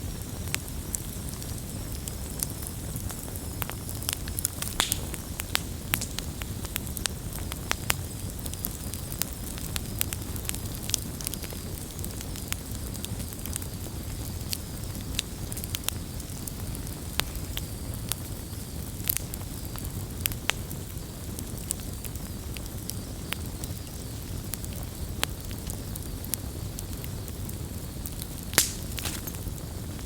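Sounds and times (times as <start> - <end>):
campfire flames rumbling: 0.0 - 30.0
wood popping and snapping: 4.5 - 6.2, 28.5 - 29.4.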